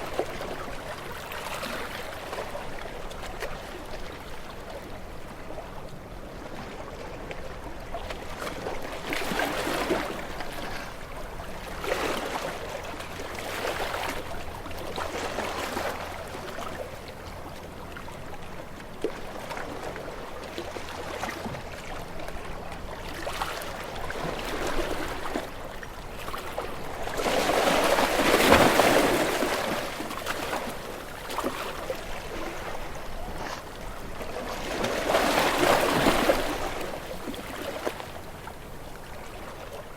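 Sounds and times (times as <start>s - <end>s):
small waves washing onto shore: 18.8s - 39.9s.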